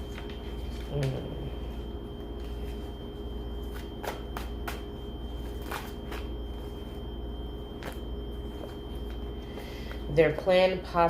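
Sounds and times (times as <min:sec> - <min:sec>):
steady background hum: 0:00.0 - 0:11.0
cards being shuffled: 0:03.7 - 0:04.8.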